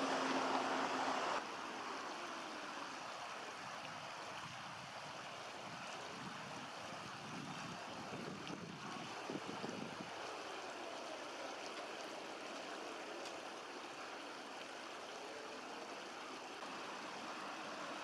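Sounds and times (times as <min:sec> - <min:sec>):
river water over stones: 0:00.0 - 0:18.0.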